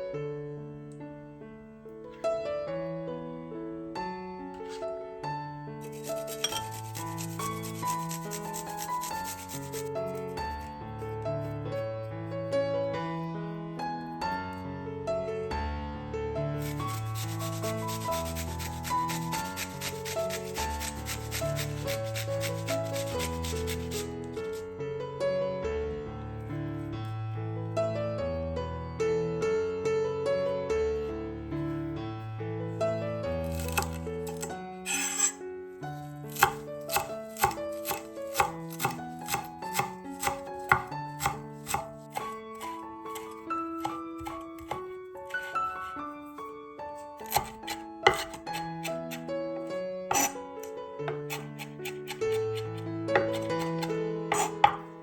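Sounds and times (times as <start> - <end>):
soft piano music: 0.0 - 55.0
knife chopping on cutting board: 5.8 - 9.9, 16.6 - 24.6, 33.4 - 35.4, 36.3 - 46.0, 47.2 - 49.2, 50.1 - 50.4, 51.1 - 54.9
fast rasping strokes: 5.8 - 10.7, 16.6 - 24.6, 33.4 - 35.4, 36.2 - 46.0, 47.2 - 49.3, 50.1 - 50.4, 51.1 - 54.9.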